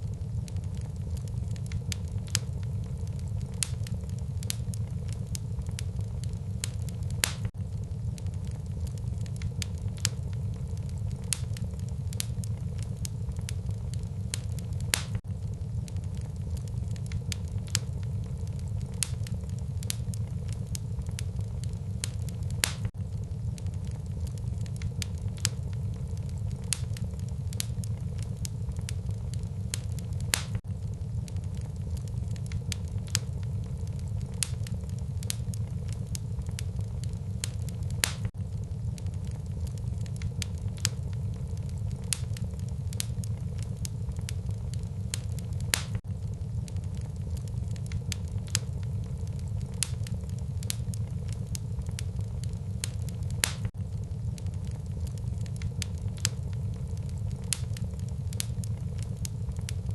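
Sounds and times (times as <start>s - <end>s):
fire crackling and popping: 0.0s - 59.9s
low rumble of flames: 0.0s - 59.9s
loud wood snaps: 7.2s - 7.5s, 22.6s - 22.9s, 30.3s - 30.6s, 38.0s - 38.3s, 45.7s - 46.0s, 53.4s - 53.7s.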